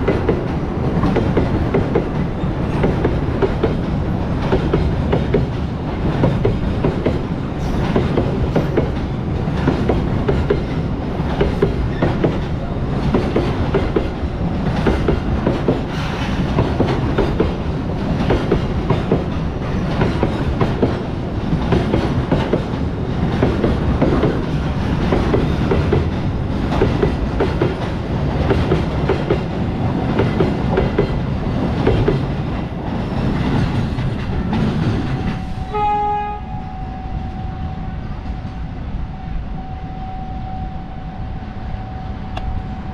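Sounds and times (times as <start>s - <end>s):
train wheels clattering on rails: 0.0s - 36.8s.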